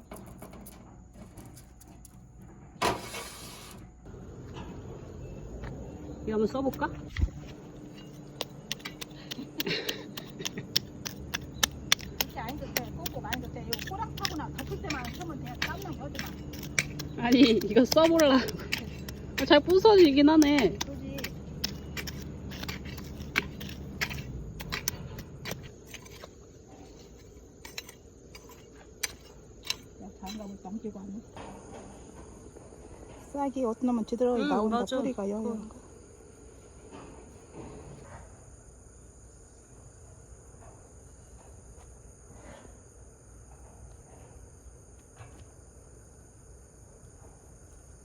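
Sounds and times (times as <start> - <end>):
crickets chirping: 0.0 - 48.0
hand gardening in dry soil: 3.0 - 31.4
sharp ticks and scrapes: 6.4 - 30.9.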